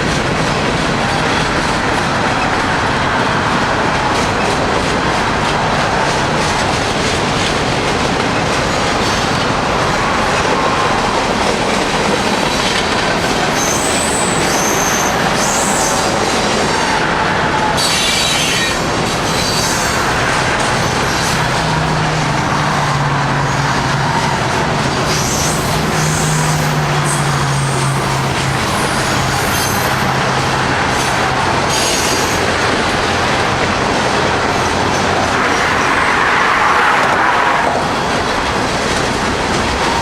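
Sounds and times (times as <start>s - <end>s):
freight train wheels rumbling: 0.0s - 40.0s
high-pitched wheel squeals: 13.5s - 16.9s.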